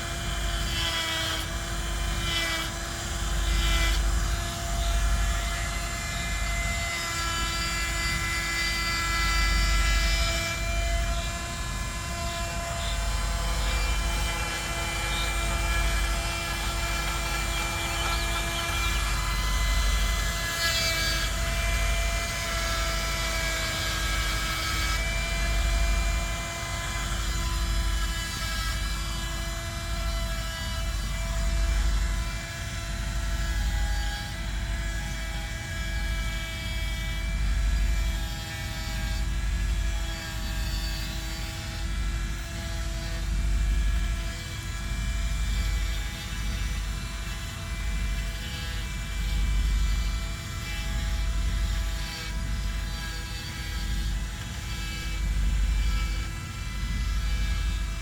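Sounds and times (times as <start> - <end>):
chainsaw cutting wood: 0.0 - 31.9.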